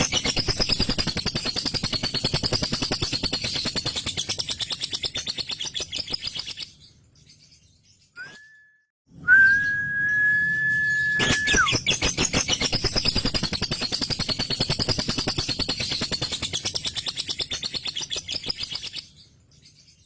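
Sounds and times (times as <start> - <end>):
bird long whistled note: 8.2 - 11.8.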